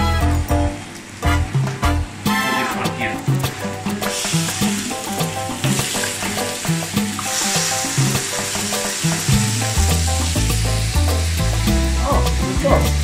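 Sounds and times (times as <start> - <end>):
background music with steady beat: 0.0 - 13.0
steak sizzling in pan: 3.4 - 13.0.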